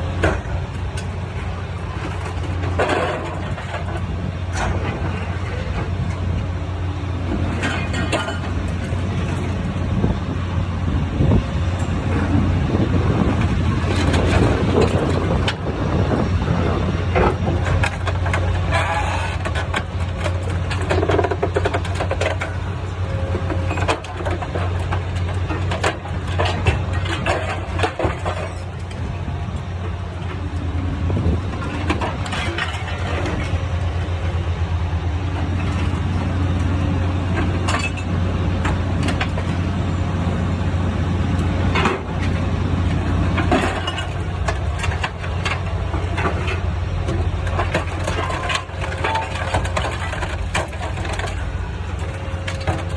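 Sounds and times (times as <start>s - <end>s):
engine humming: 0.0s - 52.9s
metal cracking and clanking: 41.7s - 52.9s.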